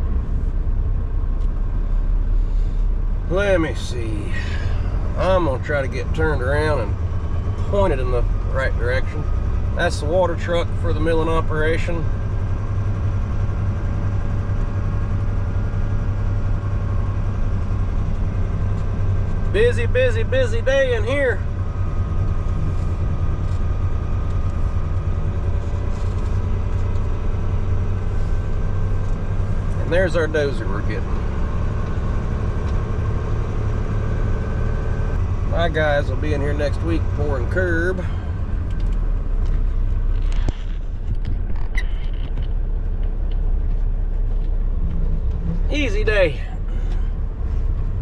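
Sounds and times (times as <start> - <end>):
truck diesel engine rumbling: 0.0 - 48.0
faint clicks and creaks: 38.6 - 45.6.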